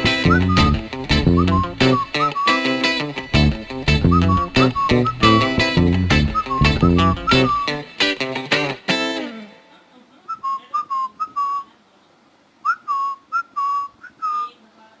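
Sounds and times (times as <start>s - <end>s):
plucked guitar notes: 0.0s - 9.6s
parrot whistling: 0.2s - 2.8s, 4.0s - 5.6s, 6.2s - 7.8s, 10.3s - 11.7s, 12.6s - 14.6s.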